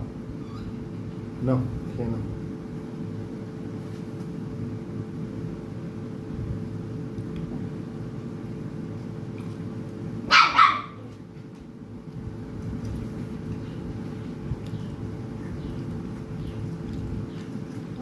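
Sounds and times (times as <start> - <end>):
background hum: 0.0 - 18.0
dog barking: 10.3 - 11.1.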